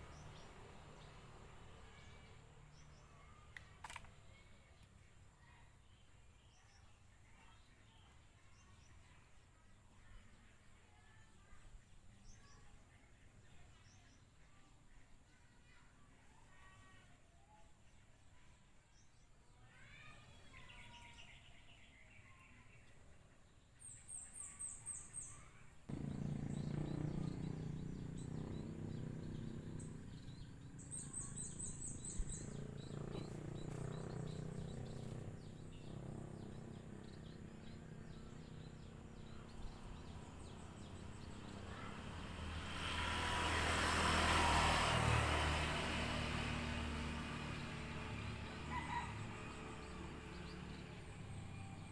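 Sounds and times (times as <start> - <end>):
small birds chirping: 0.0 - 51.9
drone motors humming: 25.9 - 42.6.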